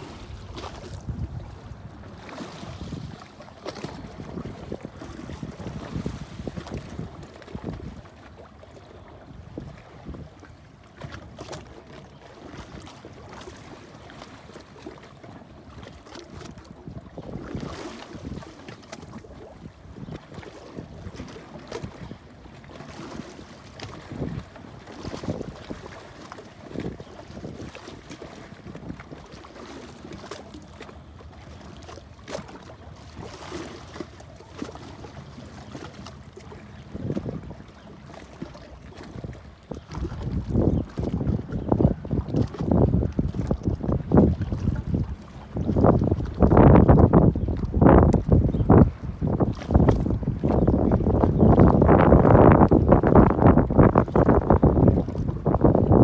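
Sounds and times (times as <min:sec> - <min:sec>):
wind buffeting microphone: 0:00.0 - 0:08.2, 0:23.8 - 0:26.0, 0:36.8 - 0:56.0
moving water: 0:00.0 - 0:56.0.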